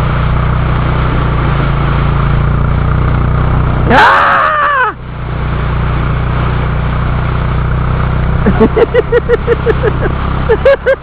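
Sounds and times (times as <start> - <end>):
low drone: 0.0 - 11.0
person crying out: 3.9 - 5.0.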